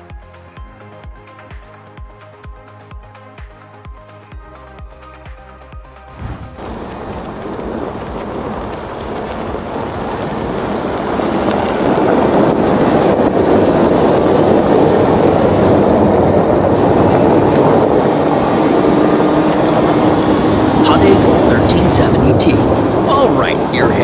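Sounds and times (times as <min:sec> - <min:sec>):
vehicle-like mechanical rumble: 0:06.1 - 0:13.7.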